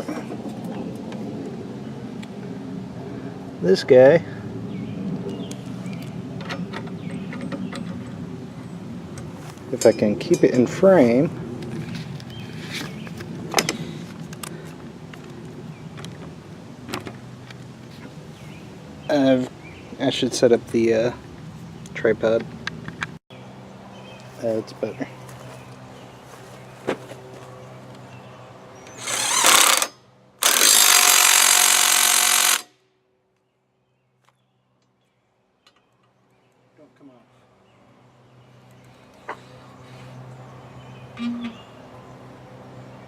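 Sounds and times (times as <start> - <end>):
power tool running: 28.9 - 32.8.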